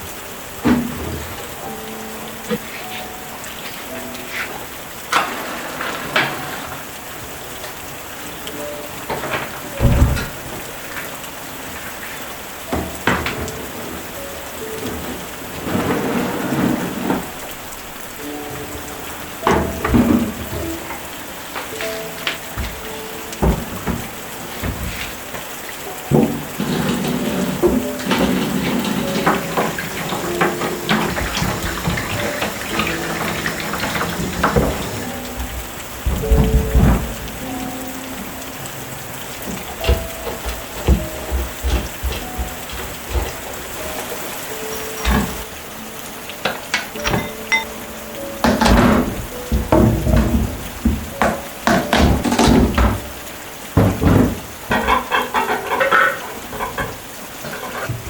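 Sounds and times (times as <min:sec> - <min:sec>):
steady rain: 0:00.0 - 0:58.0
water dripping: 0:00.0 - 0:58.0
water running and splashing: 0:00.0 - 0:58.0
knocks and clinks: 0:46.4 - 0:53.0.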